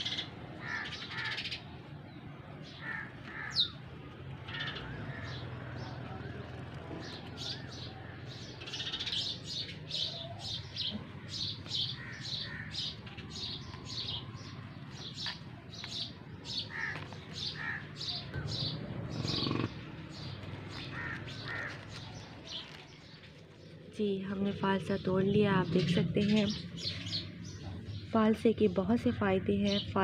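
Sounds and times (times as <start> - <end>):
small birds chirping: 0.0 - 30.0
rustling: 20.2 - 23.9.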